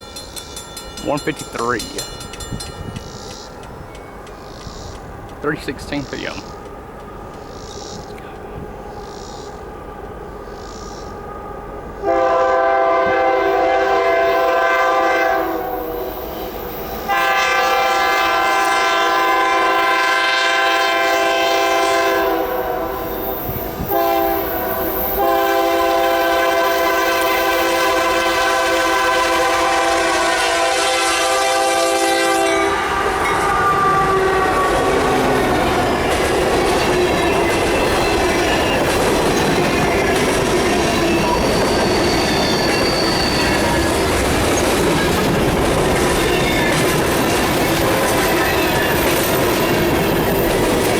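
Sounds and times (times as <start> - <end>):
train wheels rumbling over rails: 0.0 - 50.9
locomotive air horn chord: 11.2 - 16.1, 17.1 - 23.3, 23.9 - 35.3.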